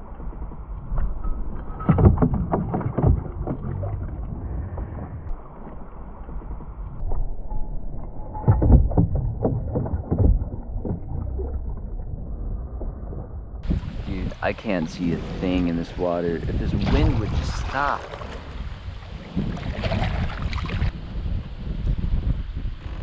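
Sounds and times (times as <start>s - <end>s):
water splashing against kayak: 8.4s - 21.0s
wind buffeting microphone: 9.0s - 23.0s.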